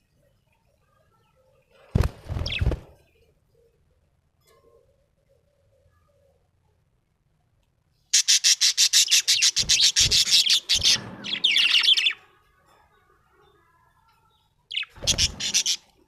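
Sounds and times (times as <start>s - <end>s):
parrot chirping: 8.1s - 12.2s, 14.7s - 15.8s.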